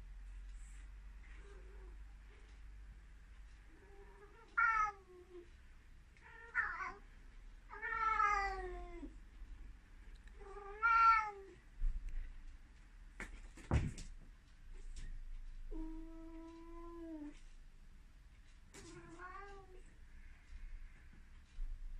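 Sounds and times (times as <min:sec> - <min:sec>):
cat meowing loudly: 0:10.6 - 0:11.5.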